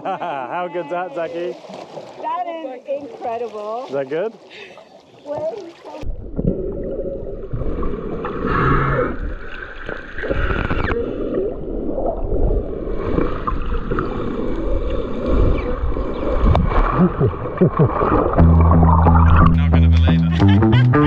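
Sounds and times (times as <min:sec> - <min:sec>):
water gurgling and sloshing: 0:00.8 - 0:19.7
heavy low rumble: 0:18.4 - 0:21.0.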